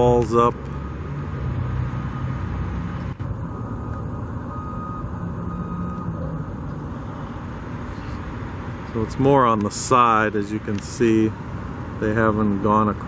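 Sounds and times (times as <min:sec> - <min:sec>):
backup alarm beeping: 0:03.3 - 0:06.2.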